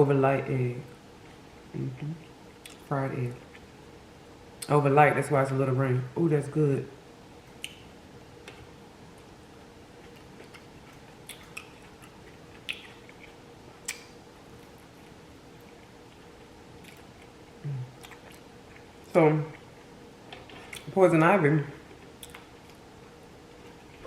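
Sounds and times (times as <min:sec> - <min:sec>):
mouth clicks and smacks: 0:07.6 - 0:07.9, 0:10.4 - 0:14.2
close-up chewing: 0:10.0 - 0:21.0.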